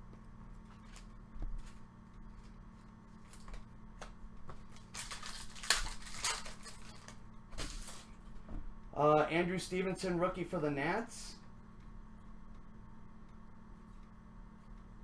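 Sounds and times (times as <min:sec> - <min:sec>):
cards clicking and rustling: 0:03.2 - 0:08.1.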